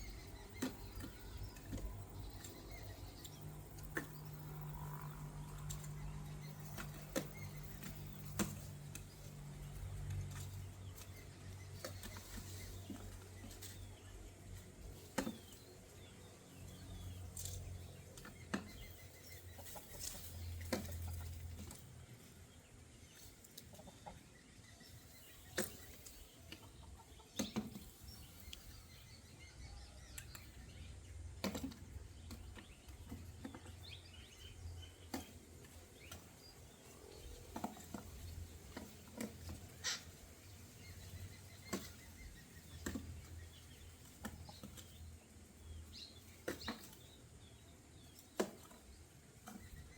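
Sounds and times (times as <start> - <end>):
birds calling softly: 0.0 - 49.9.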